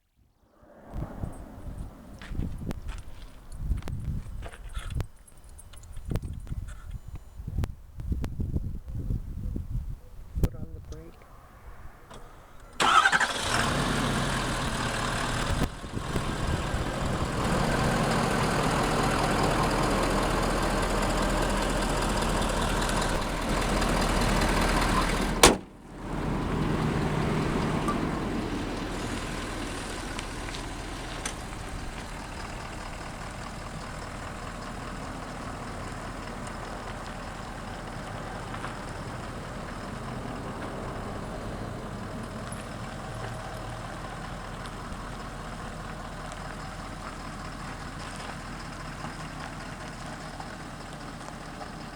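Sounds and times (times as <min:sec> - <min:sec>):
truck engine running: 0:12.1 - 0:51.9.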